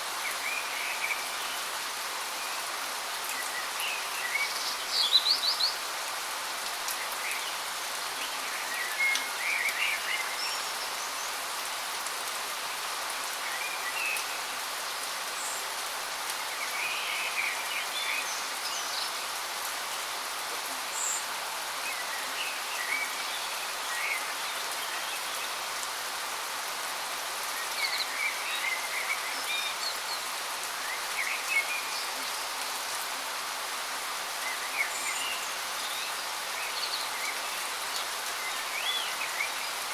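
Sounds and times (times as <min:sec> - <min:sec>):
small birds chirping: 0:00.2 - 0:11.7, 0:27.4 - 0:39.9.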